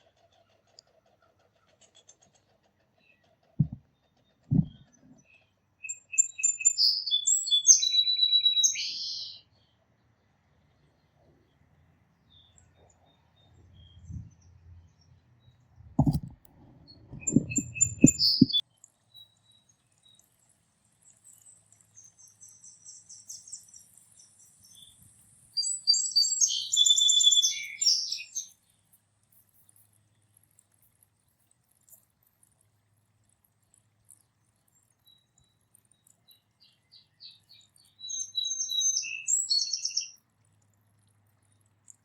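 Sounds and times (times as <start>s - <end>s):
songbirds chirping and singing: 1.8s - 11.7s, 16.9s - 20.2s, 21.0s - 28.6s, 35.0s - 40.2s
low thumps and rustles: 3.6s - 3.8s, 4.5s - 5.2s, 15.9s - 18.5s.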